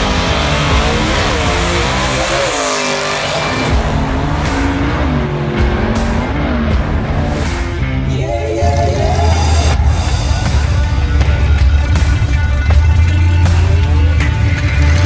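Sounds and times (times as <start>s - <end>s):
car engine revving hard: 0.0s - 7.1s, 12.6s - 15.0s.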